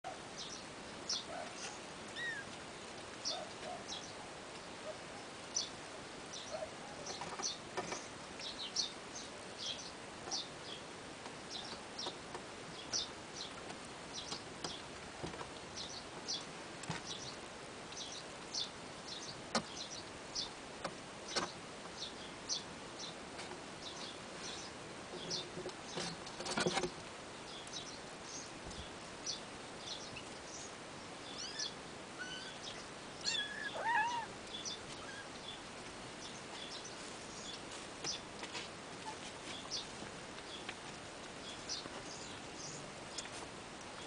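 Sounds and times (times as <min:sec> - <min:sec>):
small animals squeaking: 0:02.1 - 0:02.5, 0:31.3 - 0:35.4.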